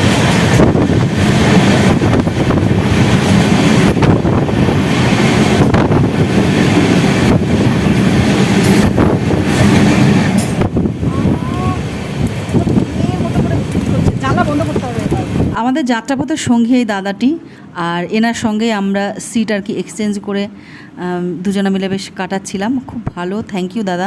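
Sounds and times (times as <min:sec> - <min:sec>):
wheels clacking on track: 0:00.0 - 0:15.6
train wheels rumbling on rails: 0:00.0 - 0:16.5.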